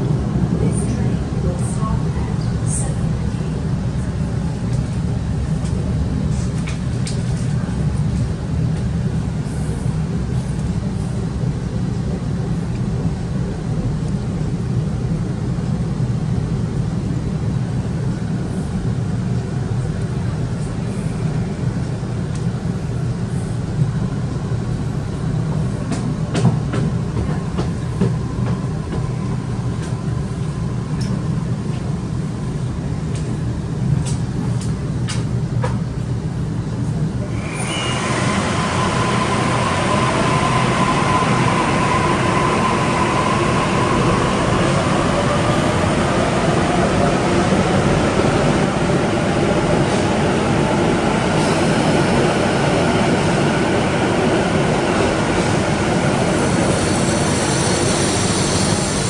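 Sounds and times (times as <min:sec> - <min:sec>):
train carriage rumbling: 0:00.0 - 0:59.0.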